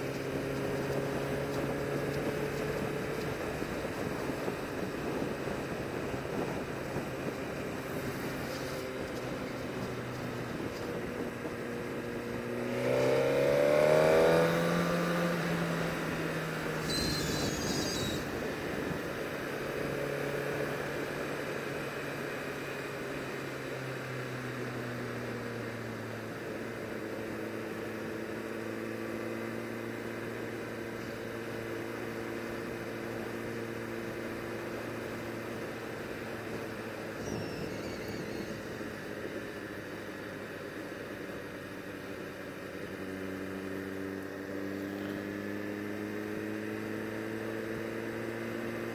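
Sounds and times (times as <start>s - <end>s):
motorbike engine revving: 11.9s - 21.2s.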